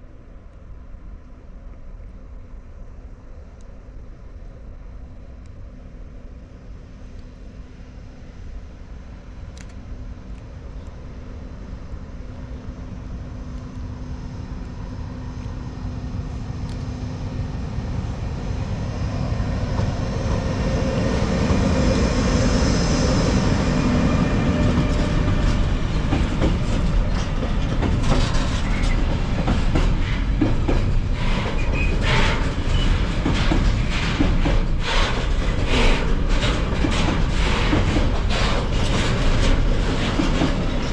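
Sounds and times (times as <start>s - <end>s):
freight train passing: 0.0s - 40.9s
wagon wheels clacking over rail joints: 24.5s - 40.9s.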